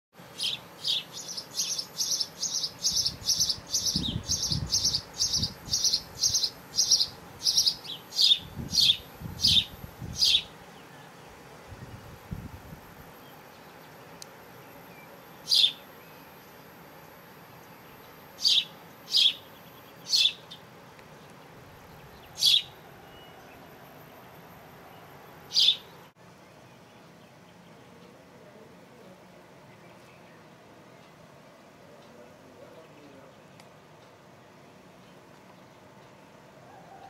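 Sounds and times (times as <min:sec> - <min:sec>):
bird chirping: 0:00.3 - 0:11.3, 0:13.2 - 0:16.8, 0:17.6 - 0:28.2.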